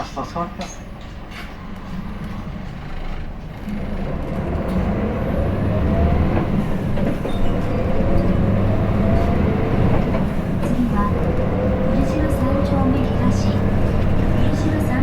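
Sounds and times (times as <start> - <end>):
bus diesel engine accelerating: 0.0 - 15.0.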